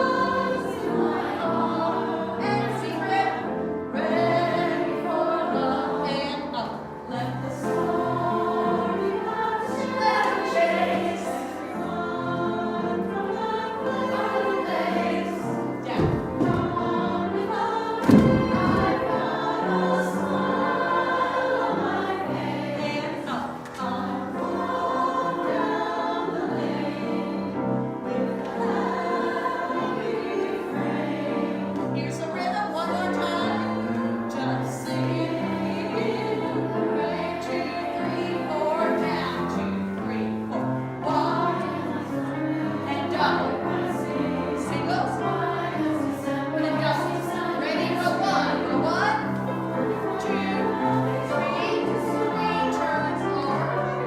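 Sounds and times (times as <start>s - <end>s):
choir singing: 0.0s - 54.0s
musical accompaniment: 0.0s - 54.0s
low bumps: 15.3s - 21.3s.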